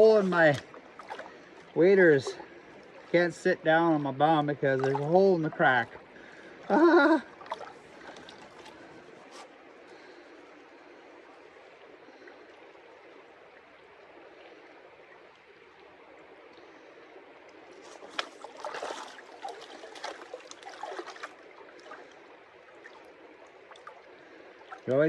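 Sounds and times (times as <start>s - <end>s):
river running: 0.0s - 25.0s
water splashing and sloshing: 0.0s - 25.0s.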